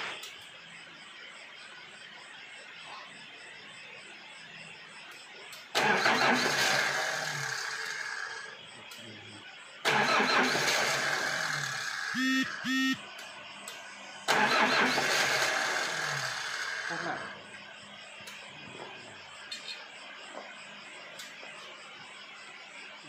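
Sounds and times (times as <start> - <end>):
engine running in bursts: 5.7 - 8.6, 9.9 - 17.8
short steady tones: 12.1 - 13.0.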